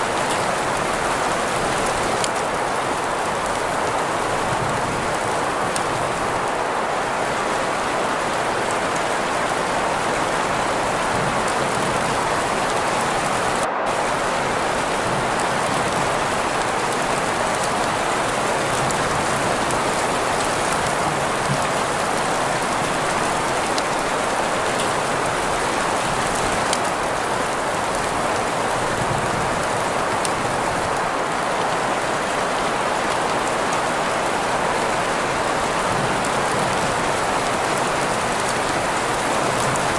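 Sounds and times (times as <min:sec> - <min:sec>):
steady rain hiss: 0:00.0 - 0:39.9
green noise: 0:11.0 - 0:18.5.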